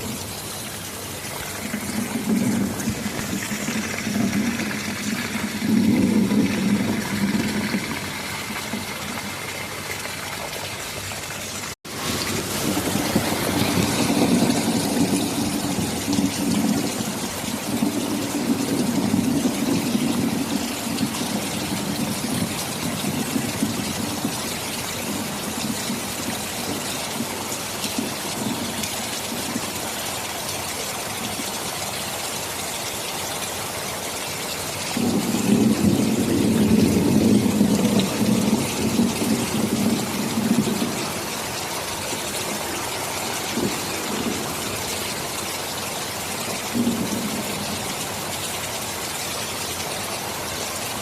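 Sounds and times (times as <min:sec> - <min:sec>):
heavy rain: 0:00.0 - 0:51.0
rolling thunder: 0:01.4 - 0:09.5, 0:11.9 - 0:27.4, 0:35.0 - 0:45.3, 0:46.3 - 0:48.1.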